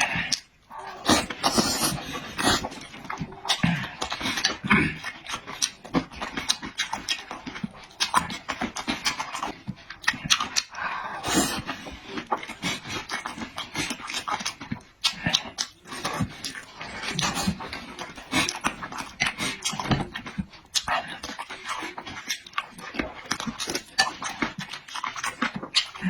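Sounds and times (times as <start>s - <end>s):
chewing and lip-smacking: 0.0s - 26.0s.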